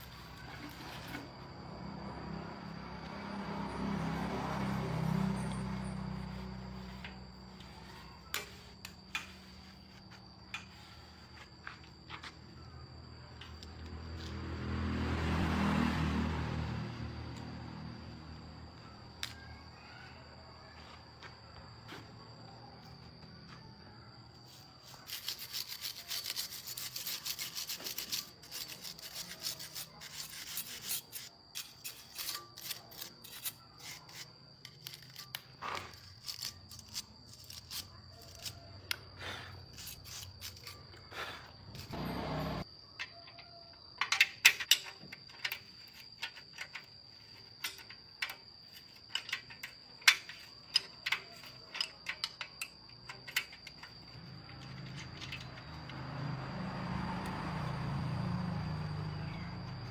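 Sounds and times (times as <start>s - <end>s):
scraping metal parts: 5.3s - 12.5s, 24.5s - 56.1s.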